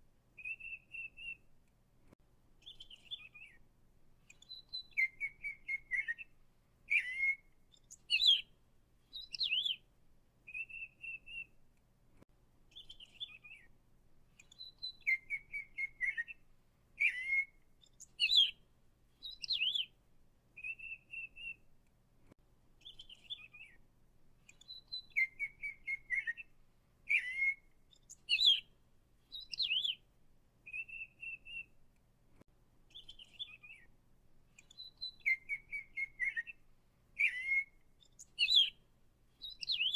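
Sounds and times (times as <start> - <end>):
songbird whistling and chirping: 0.4 - 1.5, 2.6 - 3.6, 4.2 - 9.9, 10.5 - 11.6, 12.7 - 13.7, 14.4 - 16.4, 17.0 - 18.6, 19.2 - 20.0, 20.6 - 21.6, 22.8 - 23.8, 24.4 - 26.5, 27.1 - 30.0, 30.6 - 31.8, 32.9 - 33.9, 34.5 - 38.8, 39.4 - 39.9.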